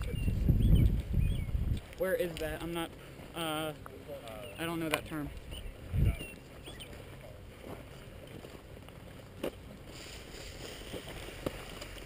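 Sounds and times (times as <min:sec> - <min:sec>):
wind rumble on microphone: 0:00.0 - 0:02.6, 0:05.2 - 0:06.7.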